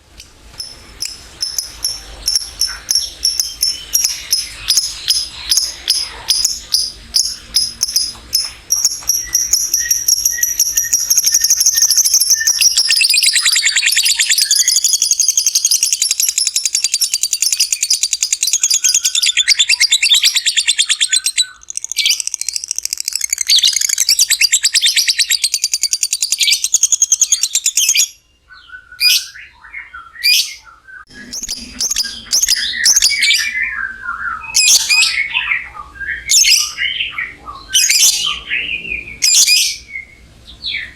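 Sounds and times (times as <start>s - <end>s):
lovebird chattering trill: 0.6s - 28.2s, 31.1s - 33.6s
bird chirps and squawks: 1.6s - 7.8s.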